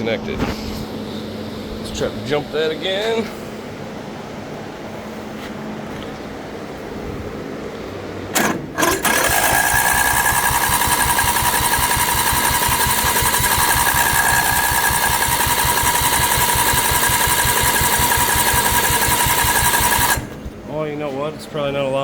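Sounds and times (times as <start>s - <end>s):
electric starter cranking engine: 8.3s - 20.6s.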